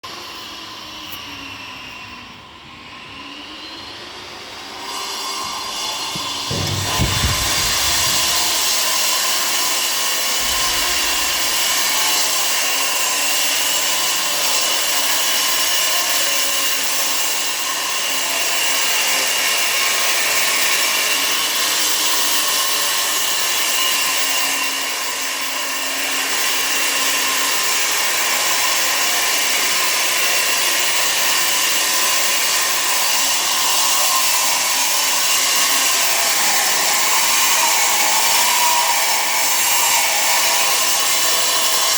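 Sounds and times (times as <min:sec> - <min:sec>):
power tool whining: 0:00.1 - 0:41.9
loud hiss: 0:06.2 - 0:08.9, 0:10.4 - 0:12.5.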